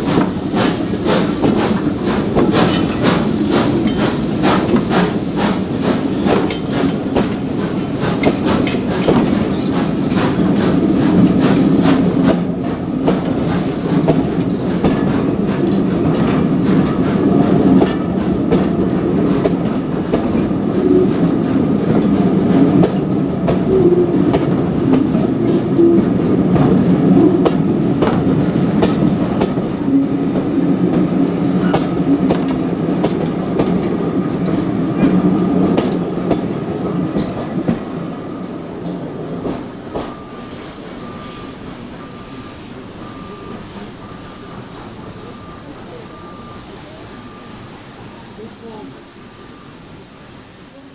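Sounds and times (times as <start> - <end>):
train wheels clicking over rail joints: 0.0 - 49.8
train rumble: 0.0 - 50.9.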